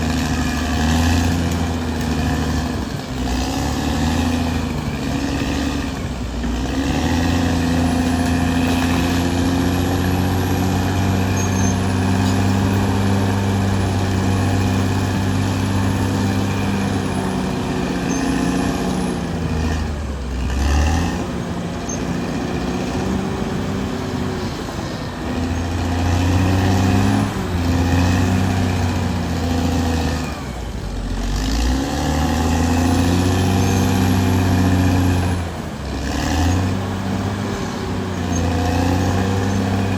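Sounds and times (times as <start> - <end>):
bulldozer diesel engine: 0.0 - 39.9.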